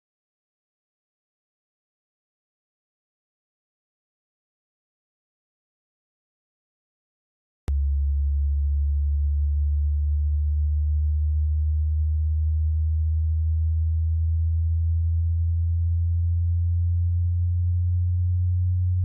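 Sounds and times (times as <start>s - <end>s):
low electronic test tone: 7.7s - 19.0s.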